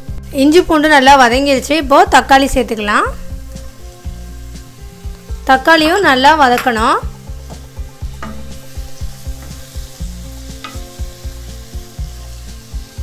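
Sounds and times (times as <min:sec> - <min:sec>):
vegetables sizzling in hot oil: 0:00.0 - 0:13.0
spatula knocking against pan: 0:07.5 - 0:08.6, 0:10.6 - 0:11.0.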